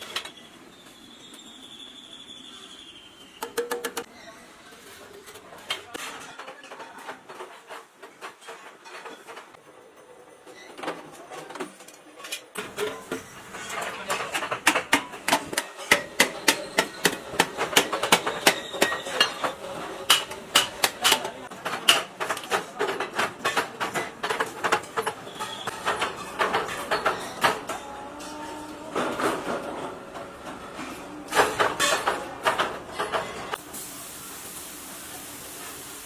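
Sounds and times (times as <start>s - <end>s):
hammering on sheet metal: 14.6s - 25.1s.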